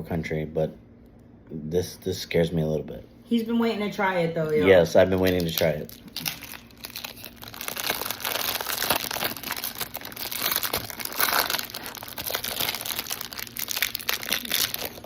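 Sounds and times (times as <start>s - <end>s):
snack wrapper crinkling: 4.8s - 15.0s.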